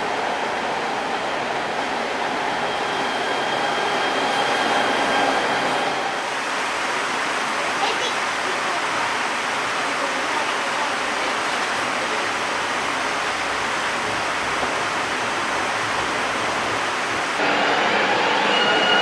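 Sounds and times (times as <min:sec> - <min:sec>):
train high whine: 0:00.0 - 0:07.0, 0:13.5 - 0:19.0
train wheels rushing on track: 0:00.0 - 0:08.9, 0:09.6 - 0:19.0.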